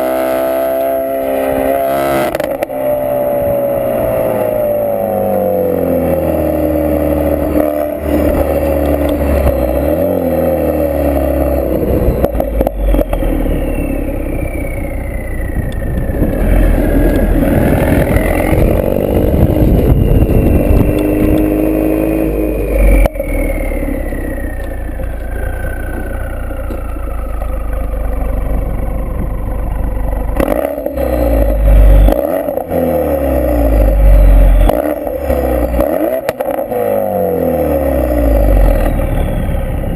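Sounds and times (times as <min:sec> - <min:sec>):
car exhaust revving: 0:00.0 - 0:39.9.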